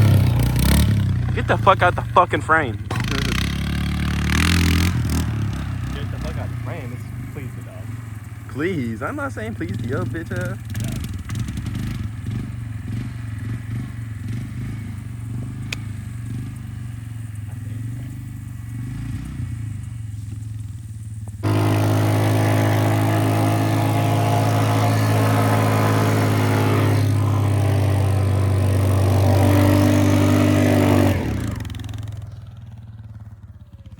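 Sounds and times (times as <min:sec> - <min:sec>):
engine idling: 0:00.0 - 0:33.9
loud engine running close: 0:00.0 - 0:33.9.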